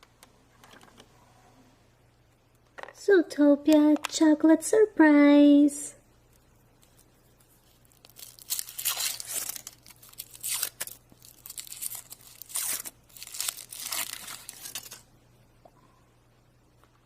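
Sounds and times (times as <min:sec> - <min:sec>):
foil wrapper tearing and crinkling: 0:07.6 - 0:15.1.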